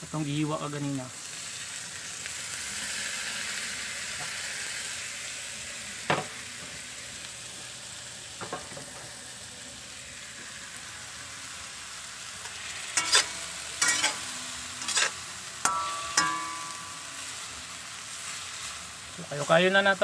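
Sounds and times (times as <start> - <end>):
food sizzling in wok: 0.0 - 20.0
metal spatula clanking on pan: 13.0 - 17.0.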